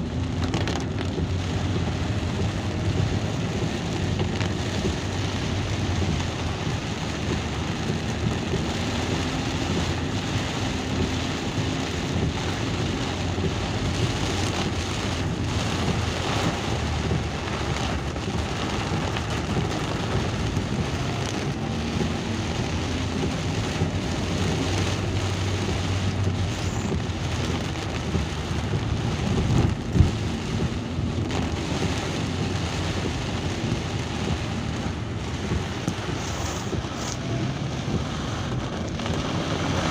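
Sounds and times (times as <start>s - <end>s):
moving vehicle hum: 0.0s - 39.9s
steady rain: 0.0s - 39.9s.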